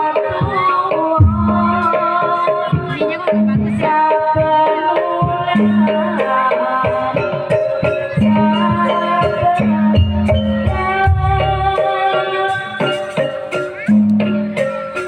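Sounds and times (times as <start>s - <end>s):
ringing metallophone tones: 5.6s - 15.0s.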